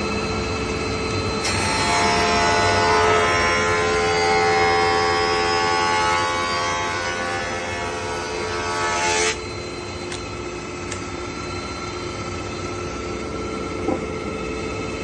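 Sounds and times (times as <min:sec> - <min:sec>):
machine humming and whining: 0:00.0 - 0:15.0
planer cutting a board: 0:01.4 - 0:09.5.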